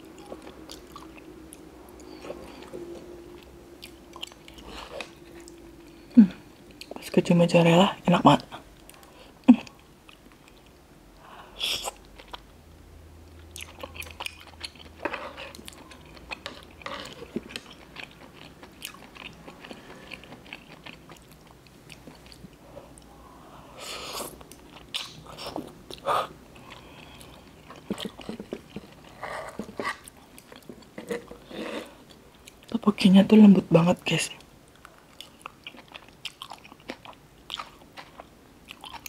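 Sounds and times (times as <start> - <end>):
chewing noodles: 13.3 - 23.1, 24.0 - 32.7, 34.7 - 39.0.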